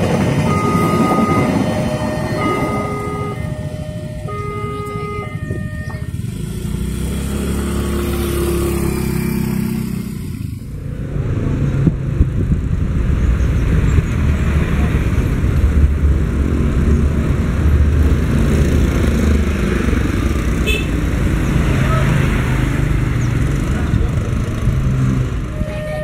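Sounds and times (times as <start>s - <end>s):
motorcycle engines in traffic: 0.0s - 26.0s
motorcycles passing: 0.0s - 26.0s
faint held tone: 0.5s - 6.2s.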